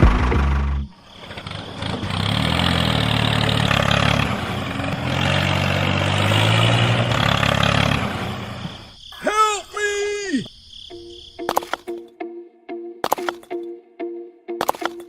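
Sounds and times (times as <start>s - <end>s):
engine running: 0.0s - 8.9s.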